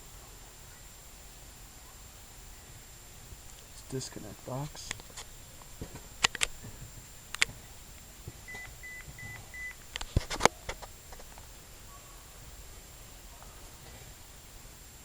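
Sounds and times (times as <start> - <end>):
sharp clicks: 4.8 - 6.6, 7.3 - 8.8
short electronic beeps: 8.5 - 9.8.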